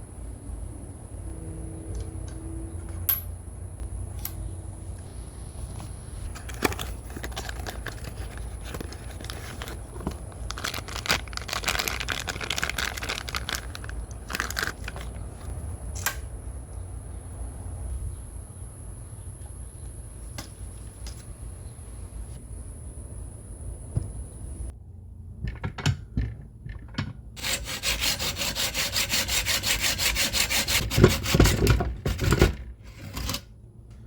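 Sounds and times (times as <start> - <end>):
low steady hum: 0.0 - 34.0
rustling and crinkling: 5.6 - 15.5.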